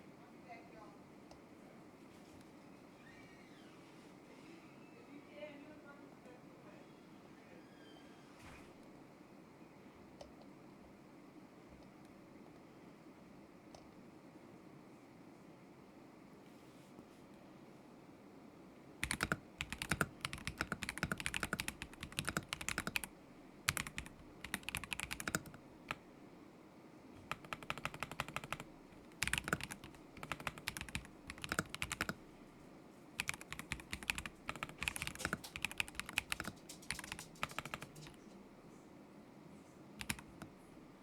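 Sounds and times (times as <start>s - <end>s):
mechanical keyboard typing: 19.0s - 23.1s, 23.7s - 26.0s, 27.2s - 32.3s, 33.2s - 38.2s, 40.0s - 40.6s.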